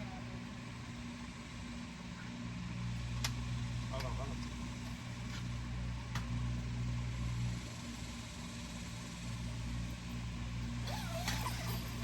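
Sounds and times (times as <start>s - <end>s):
low engine hum: 0.0s - 12.0s
gliding squeak: 10.9s - 12.0s.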